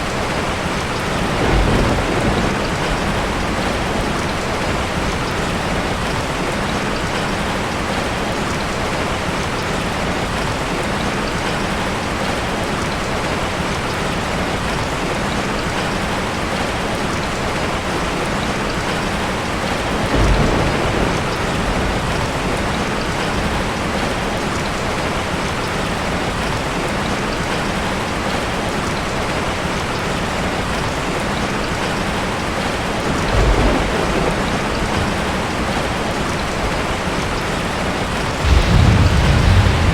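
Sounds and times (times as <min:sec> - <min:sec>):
heavy rain falling: 0:00.0 - 0:39.9
low rumble: 0:38.4 - 0:39.9.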